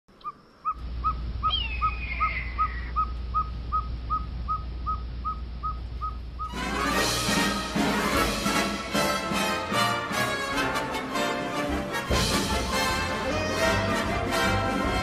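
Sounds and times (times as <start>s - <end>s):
owl whistled toots: 0.2s - 6.6s.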